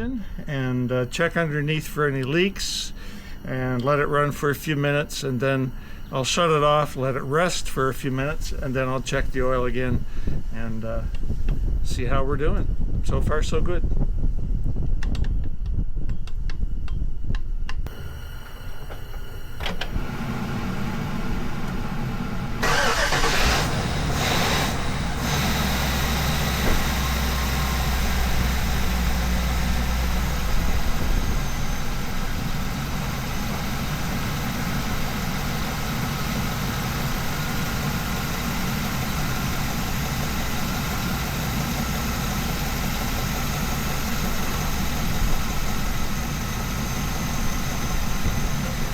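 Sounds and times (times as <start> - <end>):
engine starting and idling: 17.9 - 48.9.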